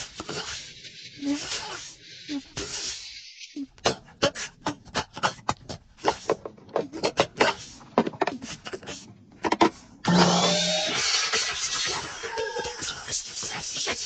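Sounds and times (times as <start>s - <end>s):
loud steady hissing: 0.0s - 4.7s, 10.1s - 14.0s.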